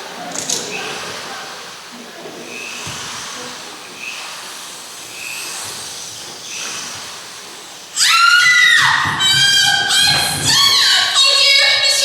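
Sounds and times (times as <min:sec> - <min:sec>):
steady hiss: 0:00.0 - 0:12.0
girl screaming: 0:08.0 - 0:11.7.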